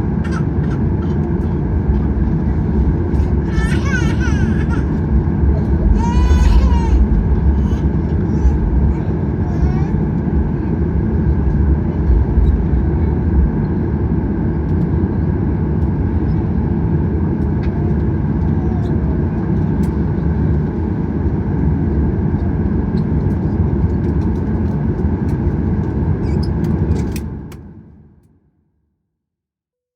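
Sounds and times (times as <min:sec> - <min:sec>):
aircraft engine rumble while taxiing: 0:00.0 - 0:28.0.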